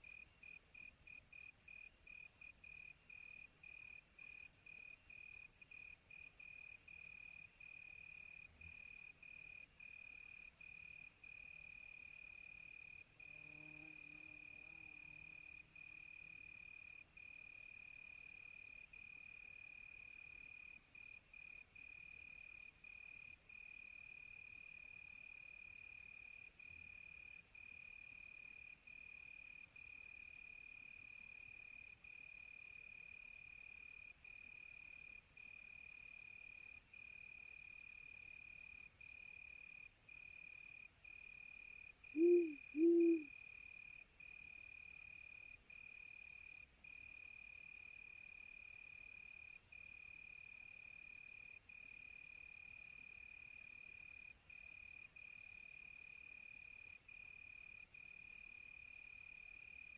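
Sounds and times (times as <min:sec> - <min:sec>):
crickets trilling: 0:42.2 - 0:43.3
owl hoots: 0:42.2 - 0:43.3.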